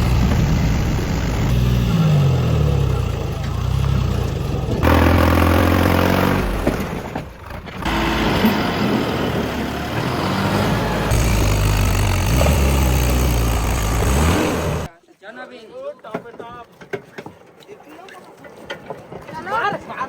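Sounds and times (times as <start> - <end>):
tractor diesel engines running: 0.0 - 14.9.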